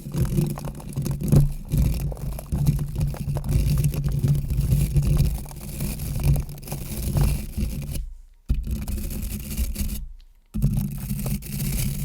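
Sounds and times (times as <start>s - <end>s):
small crackles: 0.0s - 8.8s
rubbing and scraping: 0.0s - 12.0s.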